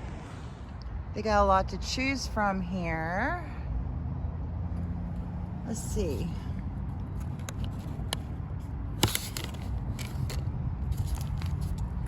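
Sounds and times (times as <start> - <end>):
steady low rumble: 0.0 - 4.0.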